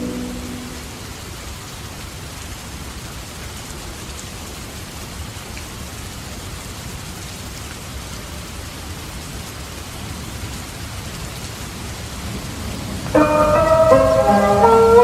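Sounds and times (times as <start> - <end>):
steady rain falling: 0.0 - 15.0
muffled music in another room: 13.2 - 15.0.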